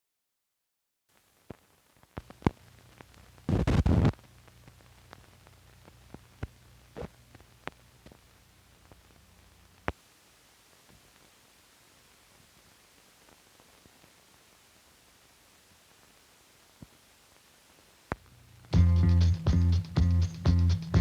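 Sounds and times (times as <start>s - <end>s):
burst of crackle: 1.2s - 10.0s
film soundtrack clicks and pops: 1.5s - 5.3s.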